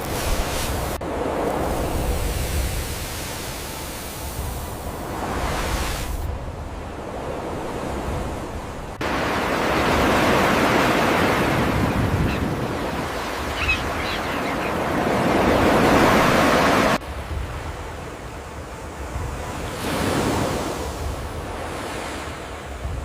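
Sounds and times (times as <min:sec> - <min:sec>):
ocean surf washing on beach: 0:00.0 - 0:23.0.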